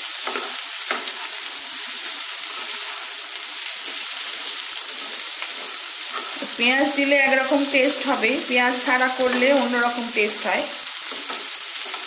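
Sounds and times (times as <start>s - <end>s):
potatoes sizzling in oil: 0.0s - 12.0s
wooden spatula scraping wok: 0.2s - 12.0s.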